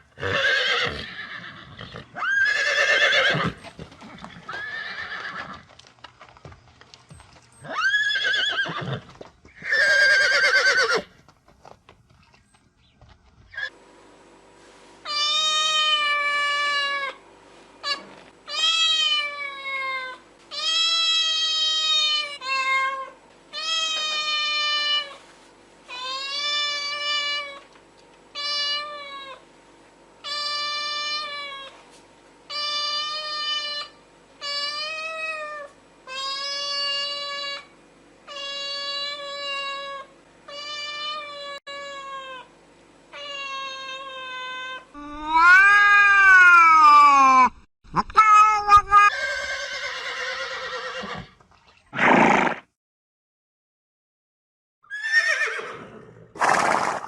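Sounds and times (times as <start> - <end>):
cat meowing: 17.9 - 24.9, 43.2 - 50.2.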